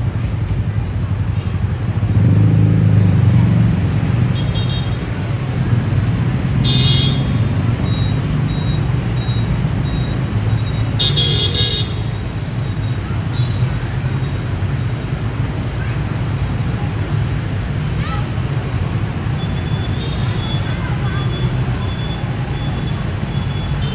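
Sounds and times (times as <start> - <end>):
street traffic engine rumble: 0.0 - 23.9
vehicle horn toots: 6.6 - 7.5, 11.0 - 12.1, 23.7 - 23.9.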